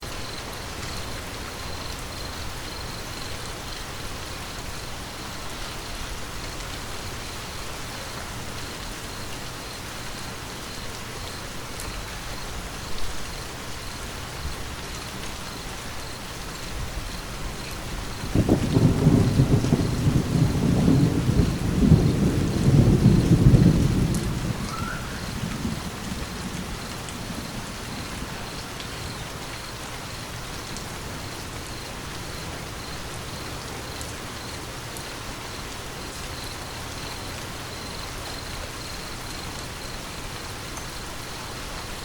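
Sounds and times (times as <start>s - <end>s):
steady rain falling: 0.0s - 42.0s
thunder rumbling: 17.8s - 29.2s.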